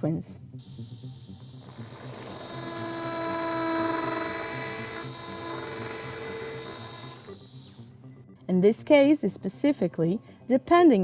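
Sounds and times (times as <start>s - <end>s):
drill motor whine: 0.6s - 7.8s.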